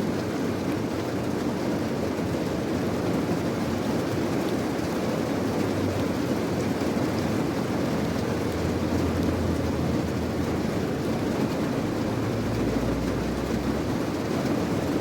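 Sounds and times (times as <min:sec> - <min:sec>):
steady rain: 0:00.0 - 0:15.0
low rumble: 0:08.4 - 0:14.1.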